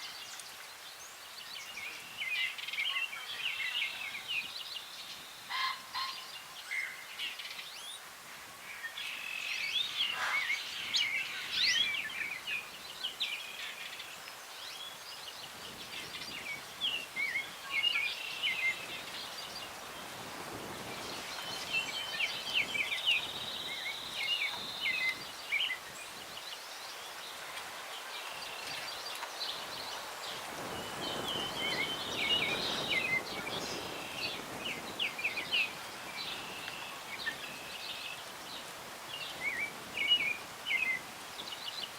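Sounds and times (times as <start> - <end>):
breeze rustling trees: 0.0 - 41.9
songbirds chirping and singing: 8.8 - 19.8, 20.9 - 27.4.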